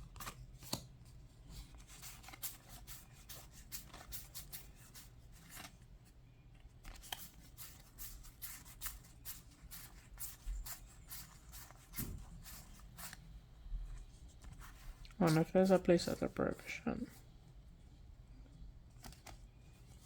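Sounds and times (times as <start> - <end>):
low steady hum: 0.0 - 20.0
cards rubbing and clicking: 1.6 - 5.7, 6.8 - 13.2.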